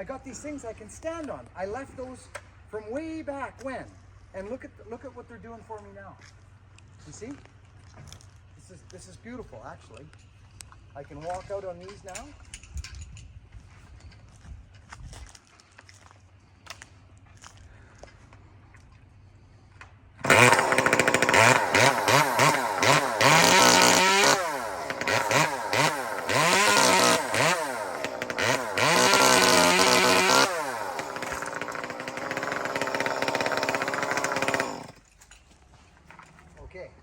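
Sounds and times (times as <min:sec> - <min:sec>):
chainsaw revving: 0:20.2 - 0:35.1.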